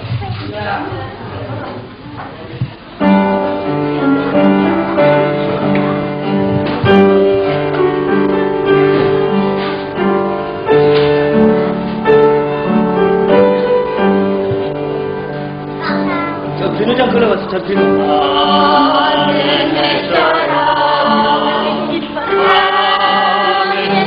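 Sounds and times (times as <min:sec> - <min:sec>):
keyboard playing sustained chords: 0:03.1 - 0:15.8.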